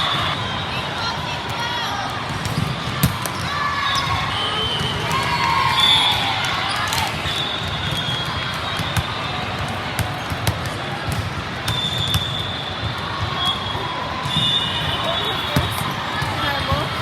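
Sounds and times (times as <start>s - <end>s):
hum of crowd voices: 0.0s - 17.0s
balls bouncing and struck: 2.2s - 5.4s, 6.9s - 13.6s, 14.2s - 17.0s.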